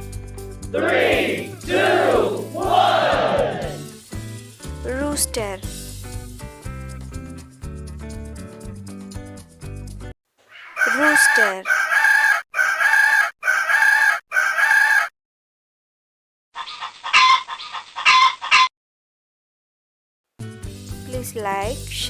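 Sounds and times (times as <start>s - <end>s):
rooster calling: 0.8s - 3.8s, 10.4s - 15.1s, 16.6s - 18.7s
rooster crowing: 10.5s - 15.1s, 16.6s - 18.7s.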